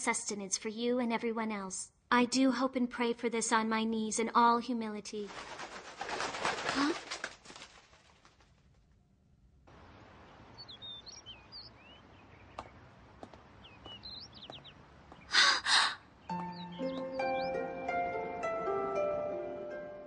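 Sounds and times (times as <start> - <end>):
small birds chirping: 9.8 - 18.6
woman gasping: 15.3 - 16.1.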